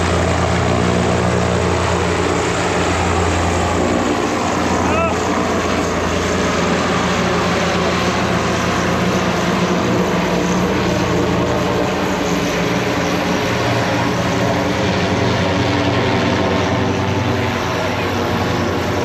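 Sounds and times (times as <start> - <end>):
propeller aircraft engine droning: 0.0 - 19.0.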